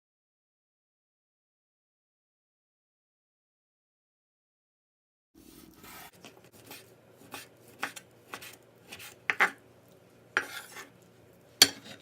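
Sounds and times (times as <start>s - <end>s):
knife slicing on cutting board: 5.4s - 9.6s, 10.4s - 10.9s.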